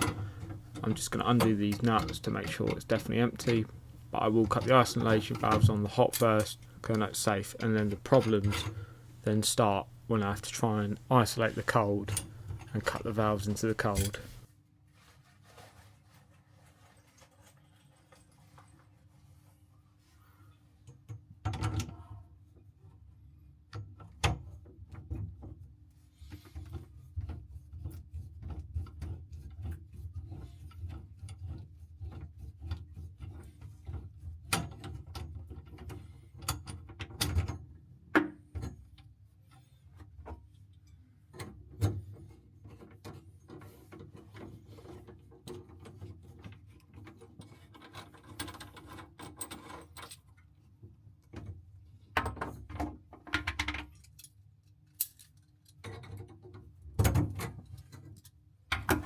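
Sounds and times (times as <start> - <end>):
hand tools clicking and scraping: 0.0 - 8.9, 11.4 - 14.4.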